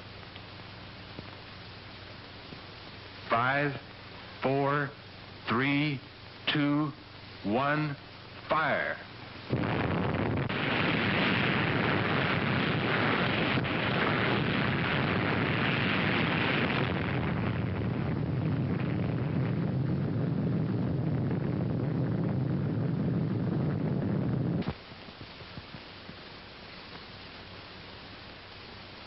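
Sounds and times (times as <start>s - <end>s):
explosion rumble: 9.5s - 24.8s.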